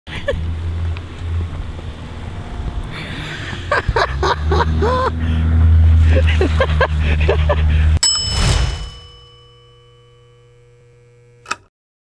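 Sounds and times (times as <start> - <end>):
vehicle engine rumble: 0.0 - 8.0
voices: 2.9 - 5.4.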